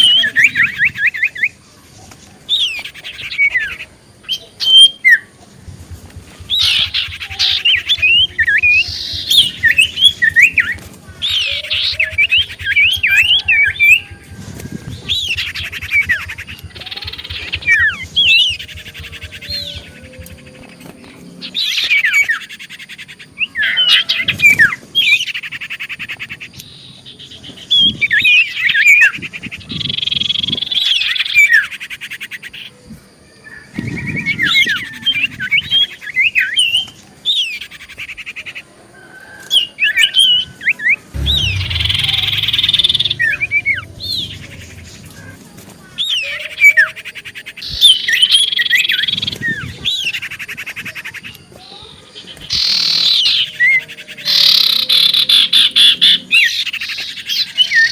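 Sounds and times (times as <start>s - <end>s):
bird singing whistles and trills: 2.5s - 5.4s, 6.4s - 22.7s.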